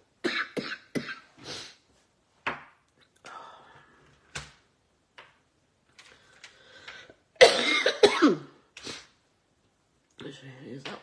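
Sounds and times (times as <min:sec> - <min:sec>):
woman coughing: 0:00.2 - 0:01.3, 0:07.4 - 0:08.5.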